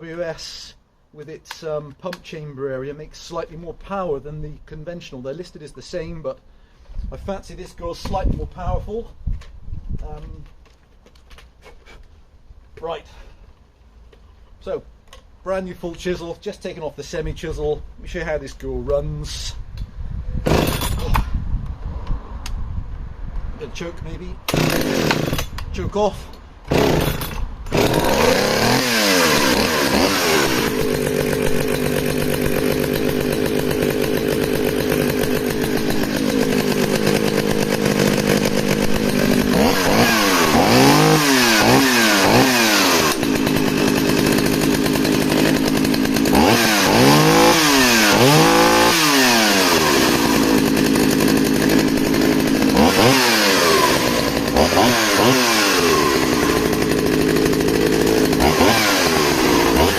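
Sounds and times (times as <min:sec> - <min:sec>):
chainsaw running and revving: 0:20.4 - 0:21.2, 0:24.5 - 0:25.6, 0:26.7 - 0:59.9.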